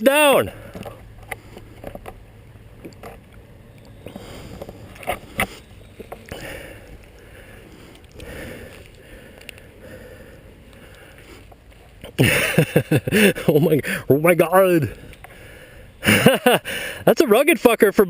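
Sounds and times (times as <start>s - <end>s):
person breathing hard: 6.3s - 11.6s, 13.1s - 14.1s, 14.9s - 17.0s.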